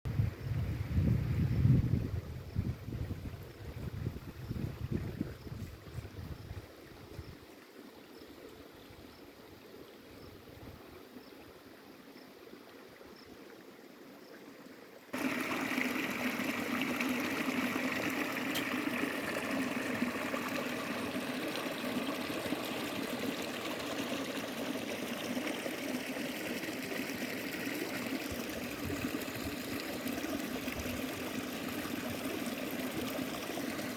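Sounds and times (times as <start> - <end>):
water trickling: 12.1 - 33.9.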